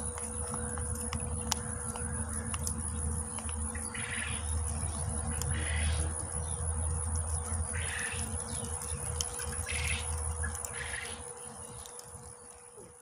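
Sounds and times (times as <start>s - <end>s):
steady low rumble: 0.0s - 12.3s
faint ticks: 0.0s - 13.0s
bird chirping and trilling: 1.5s - 11.7s.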